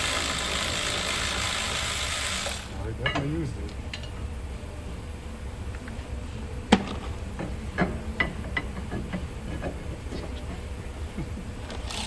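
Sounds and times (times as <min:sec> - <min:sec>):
metal tools clanking: 0:03.0 - 0:04.2.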